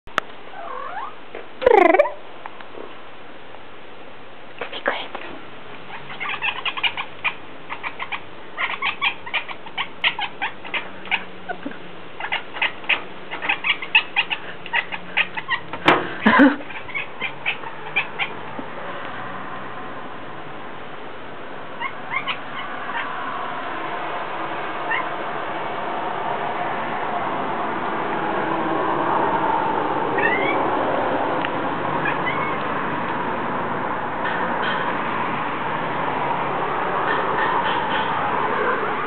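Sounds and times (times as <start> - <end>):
cat call: 0.6 - 2.2, 30.2 - 30.6, 32.0 - 32.6
cat chattering: 0.6 - 2.2, 5.9 - 15.7, 16.4 - 18.4, 21.8 - 23.1, 30.2 - 30.6, 32.0 - 32.6.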